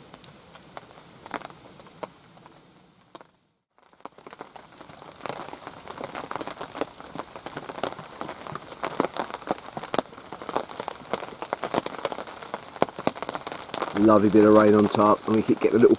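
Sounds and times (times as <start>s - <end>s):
heavy rain on a roof: 0.0s - 15.9s.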